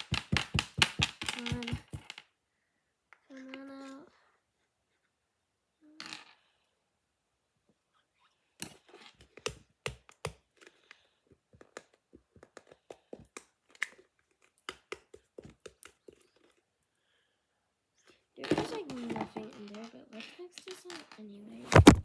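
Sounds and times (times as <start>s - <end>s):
plastic bottle being squeezed: 21.6s - 22.0s.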